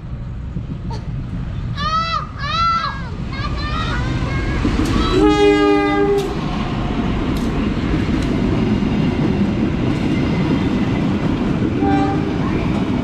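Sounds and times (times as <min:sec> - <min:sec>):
train rumbling past: 0:00.0 - 0:13.0
two-note locomotive horn: 0:05.1 - 0:06.4, 0:11.8 - 0:12.4.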